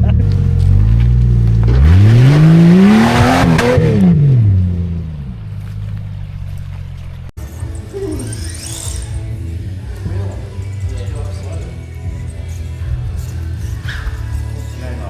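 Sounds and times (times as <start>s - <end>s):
car engine revving from idle: 0.3s - 7.3s.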